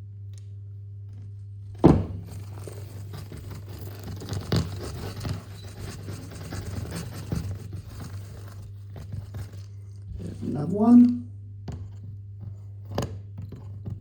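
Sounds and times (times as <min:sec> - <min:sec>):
knocks on plaster: 0:01.8 - 0:02.4
plaster scraping and crunching: 0:01.8 - 0:10.6.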